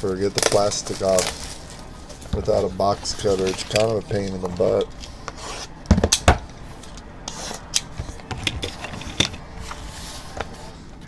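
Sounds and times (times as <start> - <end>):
plastic wrap rustling and crinkling: 0.0 - 5.8.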